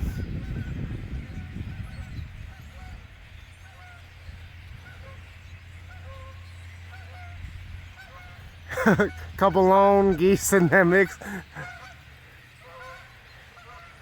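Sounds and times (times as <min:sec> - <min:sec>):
low rumble on microphone: 0:00.0 - 0:05.2
flock of birds honking: 0:00.0 - 0:14.0.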